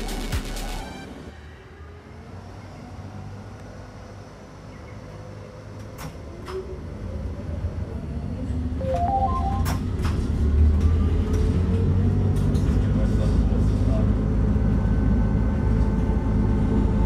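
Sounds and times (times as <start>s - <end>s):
railcar rumbling on track: 1.1s - 17.0s.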